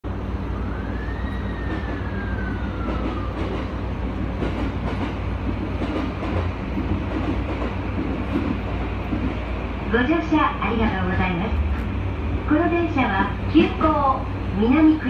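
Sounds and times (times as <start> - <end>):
train wheels rumbling on rail: 0.0 - 15.0
train motor whine: 0.4 - 4.0.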